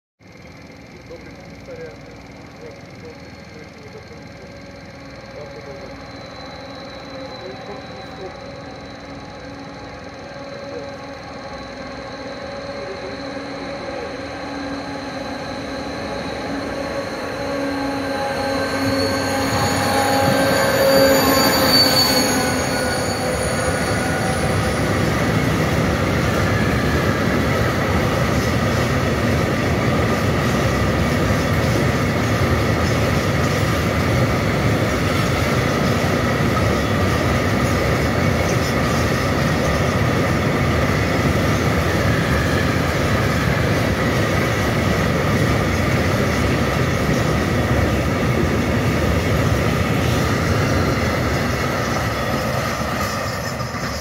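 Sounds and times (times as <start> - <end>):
diesel locomotive passing at speed: 0.2 - 54.0.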